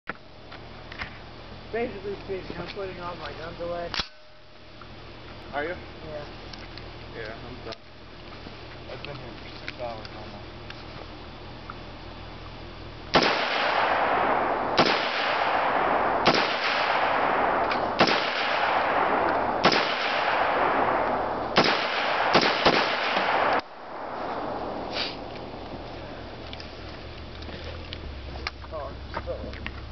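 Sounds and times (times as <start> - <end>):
rifle shots: 13.1 - 26.3
loud rushing noise: 13.9 - 26.0.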